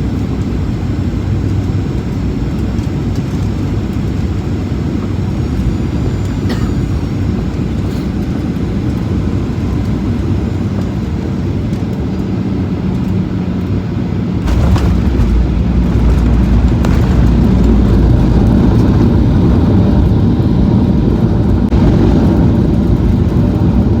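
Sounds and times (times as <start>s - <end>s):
airliner engines rumbling: 0.0s - 24.0s
wheels touching down jolt: 14.4s - 19.8s.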